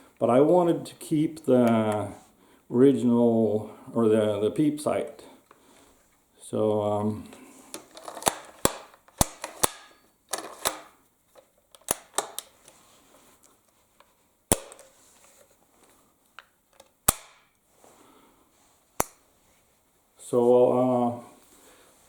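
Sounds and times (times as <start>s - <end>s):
sharp metallic clicks: 14.5s - 14.9s, 17.0s - 17.5s.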